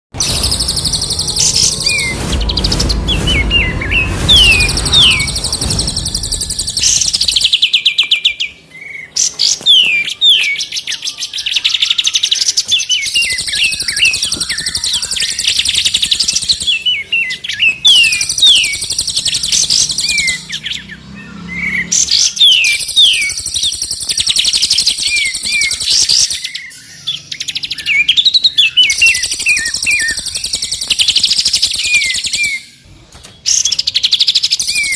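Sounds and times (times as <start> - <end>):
songbirds chirping and trilling: 0.1 - 34.9
quick sweeping whistles: 0.2 - 7.7, 28.8 - 32.6.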